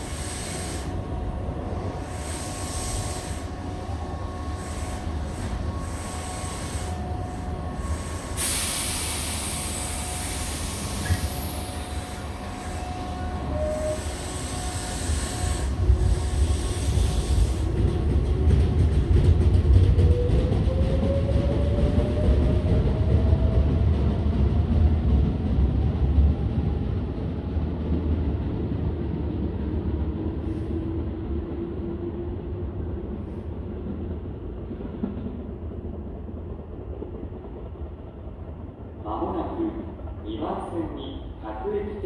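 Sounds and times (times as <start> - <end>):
compressed air hiss: 0.0 - 1.0, 8.0 - 12.7
train motor whine: 0.0 - 23.6
rumble of train wheels: 0.0 - 42.0.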